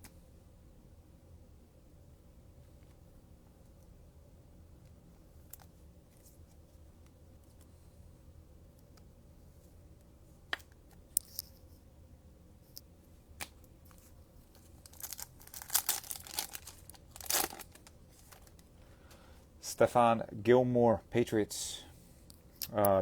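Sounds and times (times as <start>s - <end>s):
cellophane wrapper tearing and crinkling: 13.9s - 18.6s.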